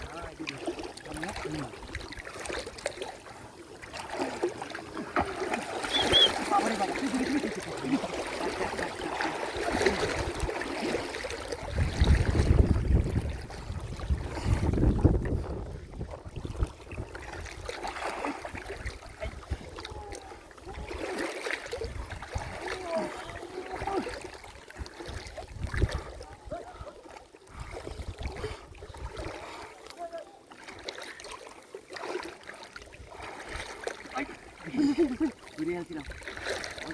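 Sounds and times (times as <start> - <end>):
water sloshing and splashing: 0.0 - 36.9
wind rumble on microphone: 11.6 - 17.7, 21.8 - 22.7, 25.3 - 26.8, 27.5 - 29.3.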